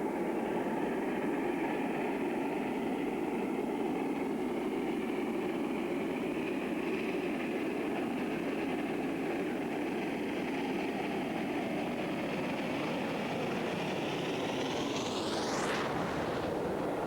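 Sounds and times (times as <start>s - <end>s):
high whine rising in pitch: 14.4s - 17.0s.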